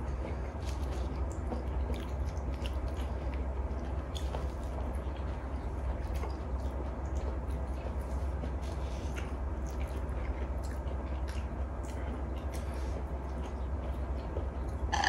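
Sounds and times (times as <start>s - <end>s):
chewing and wet eating sounds: 0.0s - 15.0s
steady low hum: 0.0s - 15.0s.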